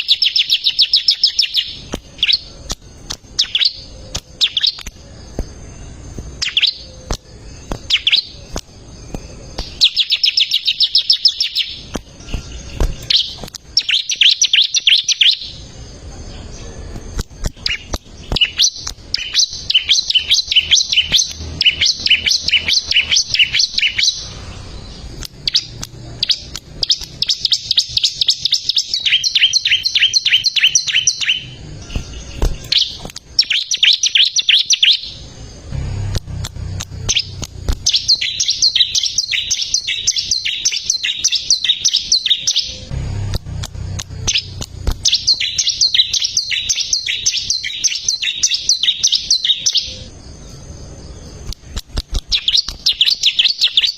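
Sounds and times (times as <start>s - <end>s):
bird singing rapid high chirps: 0.0s - 53.9s
faint low rumble: 35.0s - 39.1s, 42.7s - 46.2s.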